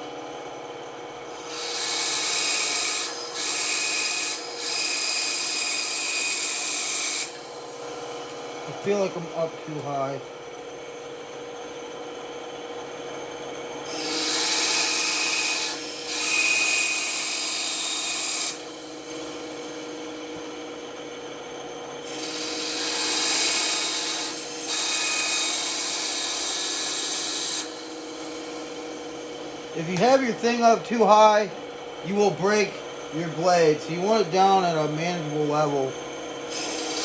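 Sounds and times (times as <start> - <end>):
band saw cutting wood: 1.3 - 10.2, 13.3 - 37.0.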